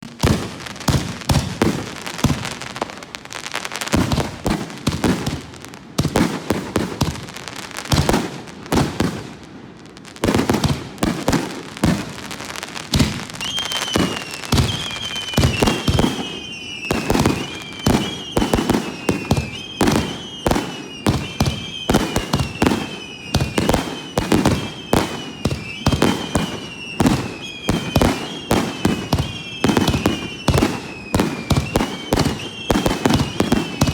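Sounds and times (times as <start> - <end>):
fireworks bursting with sharp bangs: 0.0 - 33.9
descending firework whistles: 11.8 - 33.9.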